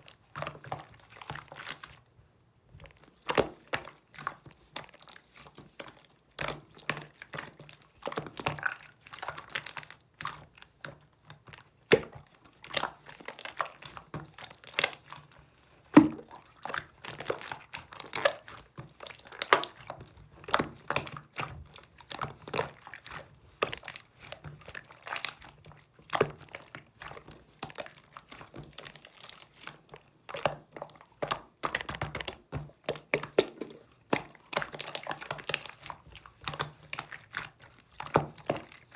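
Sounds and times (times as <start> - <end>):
crinkling and crackling: 12.6 - 38.9.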